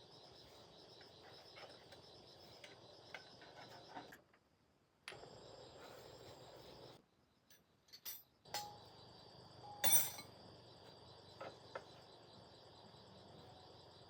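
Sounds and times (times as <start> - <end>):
insects trilling: 0.0 - 4.2, 5.1 - 7.4, 8.4 - 14.0
sharp clinks: 9.8 - 10.3.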